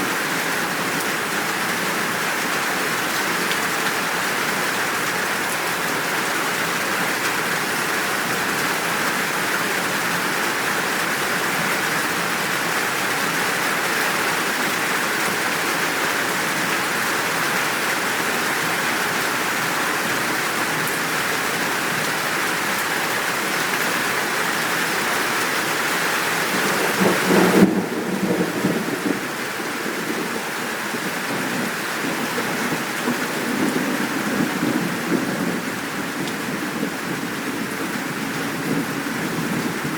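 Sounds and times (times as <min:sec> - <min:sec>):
steady downpour of rain: 0:00.0 - 0:39.9
low rolling thunder: 0:26.5 - 0:39.9.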